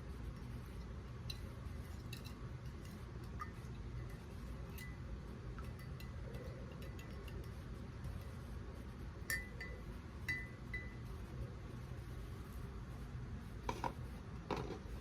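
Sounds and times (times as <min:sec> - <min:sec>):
faint low hum: 0:00.0 - 0:15.0
spoon clinking against a mug: 0:05.6 - 0:07.6, 0:09.3 - 0:11.0.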